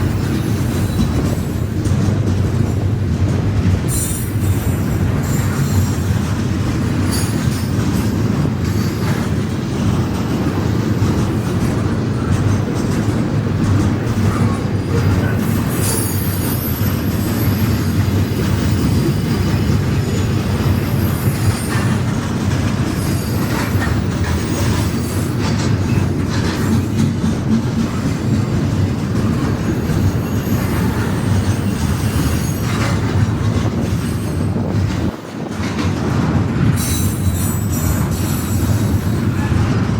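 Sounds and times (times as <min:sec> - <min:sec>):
loud train rumble: 0:00.0 - 0:39.9
wheels clattering over rail joints: 0:00.0 - 0:39.9
high wheel squeal: 0:14.3 - 0:22.0, 0:29.6 - 0:34.7, 0:36.8 - 0:39.7.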